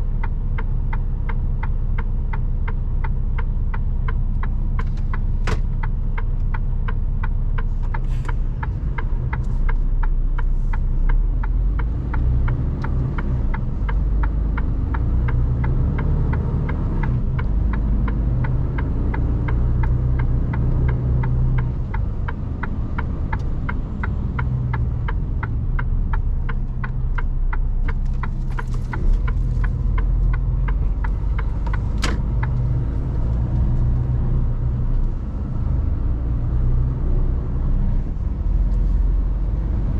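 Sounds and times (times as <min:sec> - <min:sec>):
truck engine rumbling low: 0:00.0 - 0:39.9
turn signal ticking: 0:00.0 - 0:39.9
sharp click: 0:27.9 - 0:33.0.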